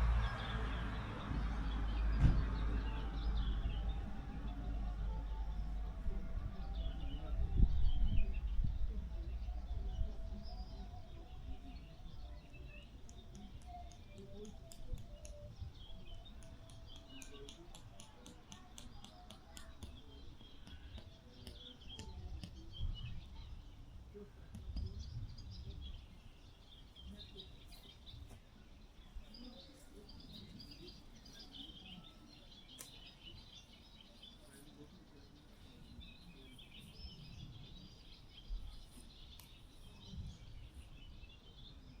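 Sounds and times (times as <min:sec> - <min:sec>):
wind rumble on microphone: 0:00.0 - 0:13.5, 0:21.9 - 0:27.4, 0:39.6 - 0:42.0
small birds chirping: 0:00.0 - 0:42.0.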